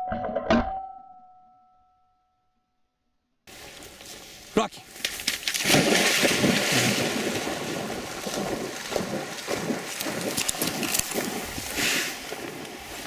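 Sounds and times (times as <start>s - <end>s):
dog splashing through water: 4.9s - 13.0s
wind on microphone: 5.6s - 13.0s.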